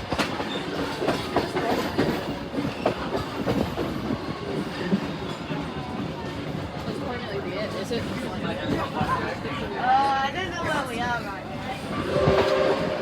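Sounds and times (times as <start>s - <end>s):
train wheels clacking over rails: 0.0s - 9.7s.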